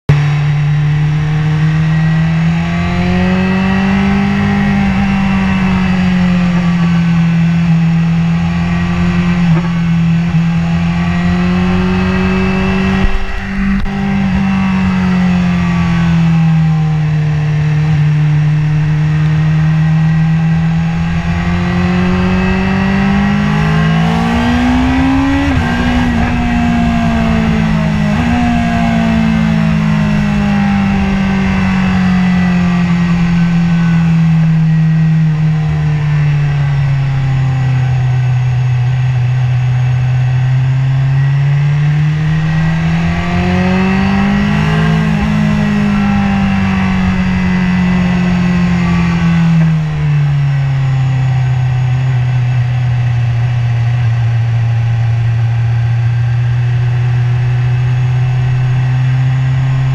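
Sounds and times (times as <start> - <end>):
motorcycle engine revving: 0.0 - 59.9
wind rush: 9.6 - 16.4, 20.0 - 34.8, 42.0 - 50.2.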